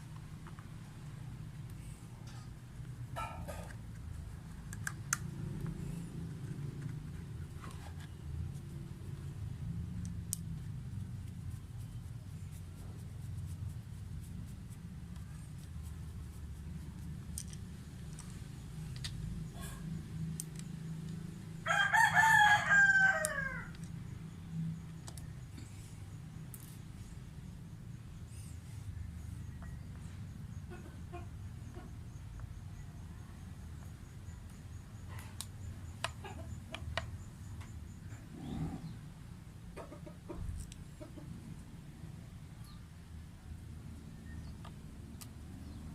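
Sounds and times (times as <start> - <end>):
steady low hum: 0.0 - 22.0
rooster crowing: 21.6 - 23.8.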